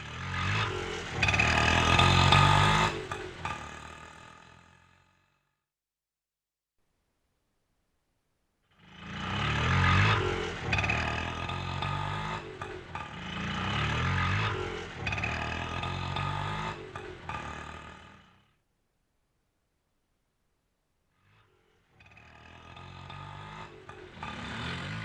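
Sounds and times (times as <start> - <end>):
auto rickshaw engine running: 0.0 - 5.4, 8.8 - 18.5, 22.0 - 25.0.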